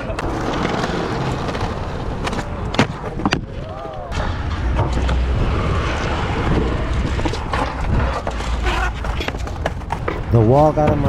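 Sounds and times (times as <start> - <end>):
skateboard clacks: 0.0 - 4.2, 7.2 - 11.0
skateboard wheels rolling on concrete: 0.0 - 11.0
wind rumble on microphone: 0.0 - 11.0.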